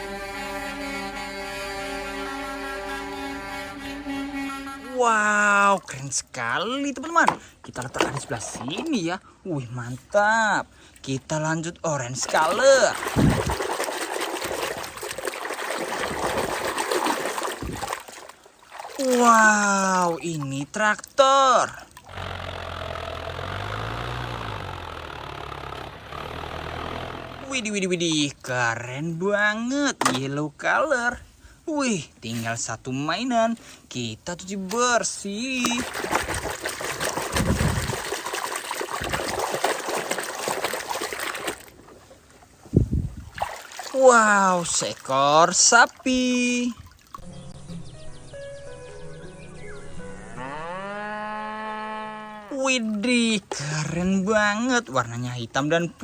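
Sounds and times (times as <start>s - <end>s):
water running and trickling: 12.3s - 22.1s, 35.5s - 41.9s, 43.2s - 47.2s.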